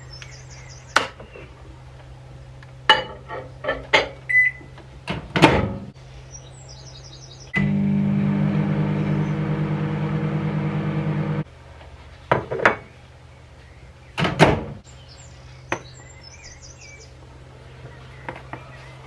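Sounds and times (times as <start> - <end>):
electric motor hum: 7.6 - 11.5.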